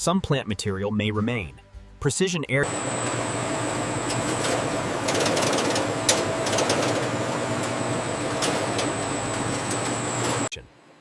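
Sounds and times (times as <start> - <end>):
machinery humming: 2.6 - 10.6
thin high whine: 2.6 - 10.6.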